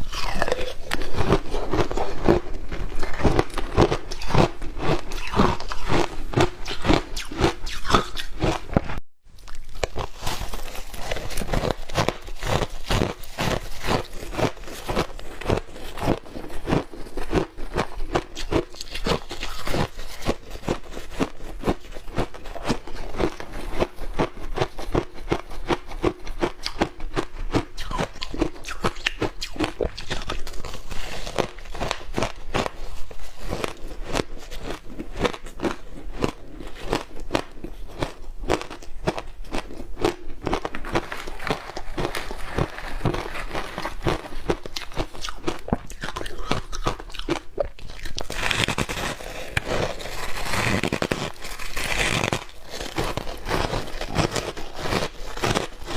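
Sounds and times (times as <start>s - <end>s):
chewing: 0.0s - 8.6s, 9.4s - 55.9s
ice crunching: 9.6s - 17.4s, 48.0s - 55.9s.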